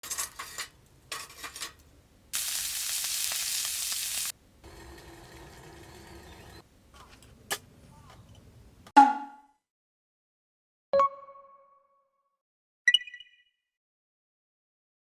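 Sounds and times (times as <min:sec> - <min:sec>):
fire crackling and sizzling: 0:02.3 - 0:04.4.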